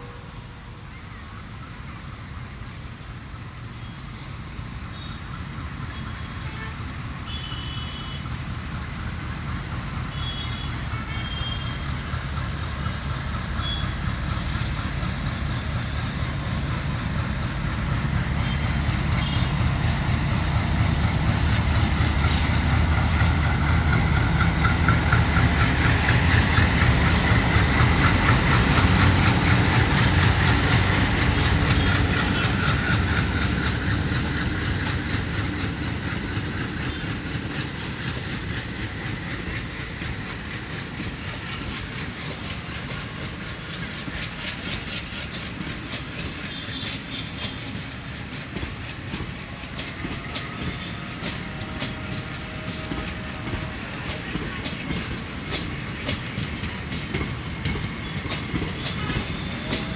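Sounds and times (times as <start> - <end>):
high steady whine: 0.0 - 41.4
diesel locomotive engines running: 0.0 - 59.9.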